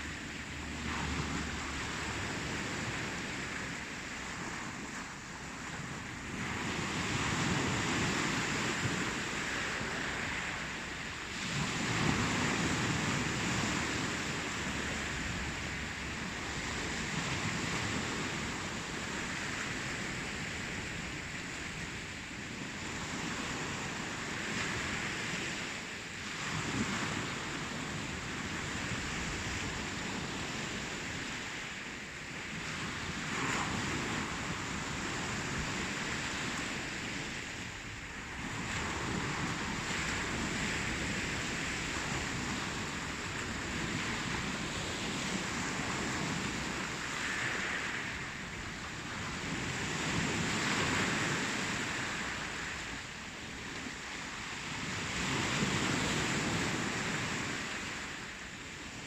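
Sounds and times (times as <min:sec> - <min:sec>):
ocean waves breaking: 0:00.0 - 0:59.0.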